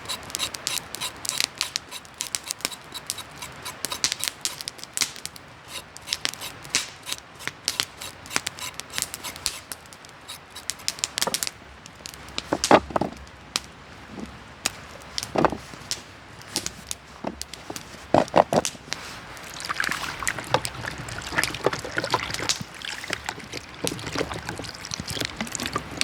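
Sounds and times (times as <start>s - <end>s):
campfire crackling: 0.0s - 12.6s.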